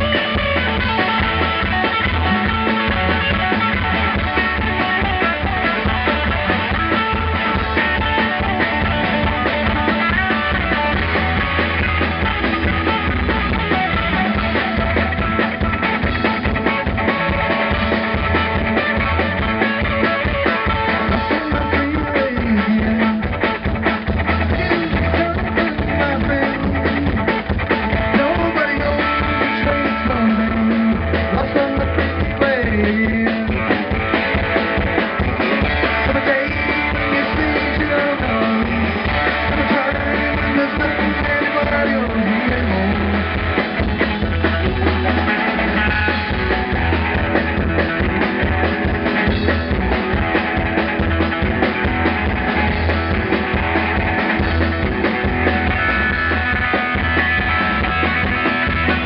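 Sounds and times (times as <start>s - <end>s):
bass guitar: 0.0s - 59.0s
drum kit: 0.0s - 59.0s
electric guitar: 0.0s - 59.0s.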